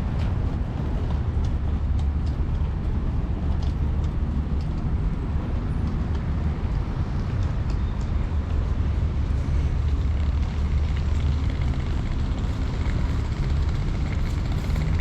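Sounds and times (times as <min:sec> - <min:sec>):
road traffic rumble: 0:00.0 - 0:15.0
faint ticks and taps: 0:01.0 - 0:08.6.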